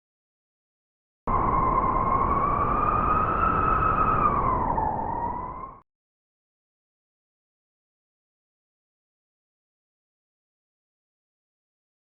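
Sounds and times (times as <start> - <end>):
wolf howl: 1.3 - 5.8.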